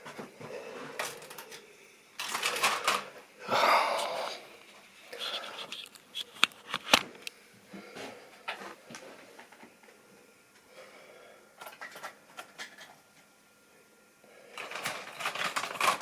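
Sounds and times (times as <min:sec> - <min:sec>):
model train clicking and rattling: 0:14.6 - 0:16.0.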